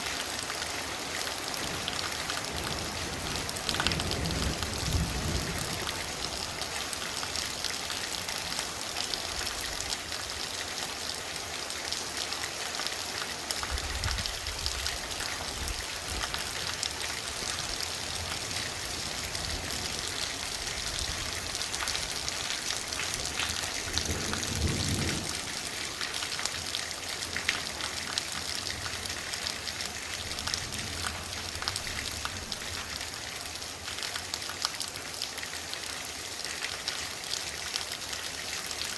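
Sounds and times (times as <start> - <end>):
torrential rain pouring: 0.0 - 38.9.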